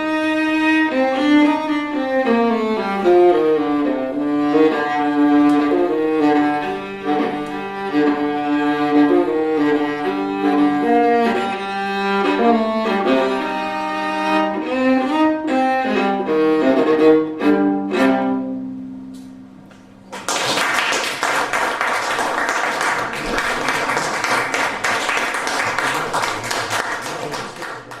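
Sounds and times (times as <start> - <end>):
waltz on solo instrument: 0.0 - 19.6
audience applause: 20.1 - 28.0.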